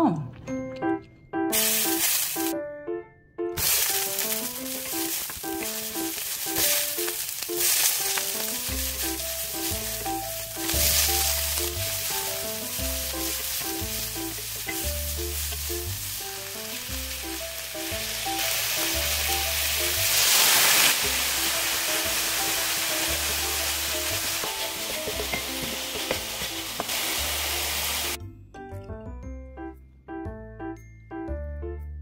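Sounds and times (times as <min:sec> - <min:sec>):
food sizzling in a skillet: 0:01.5 - 0:02.6, 0:03.6 - 0:28.2.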